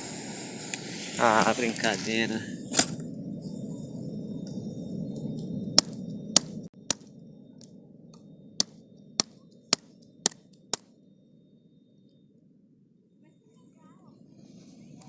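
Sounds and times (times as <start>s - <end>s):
low steady rumble: 0.0s - 15.0s
sharp clicks: 4.5s - 10.9s.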